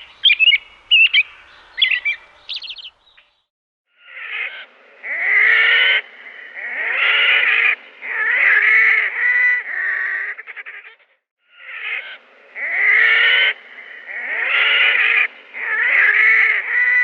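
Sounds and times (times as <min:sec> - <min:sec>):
bird drawn-out calls: 0:00.0 - 0:03.4.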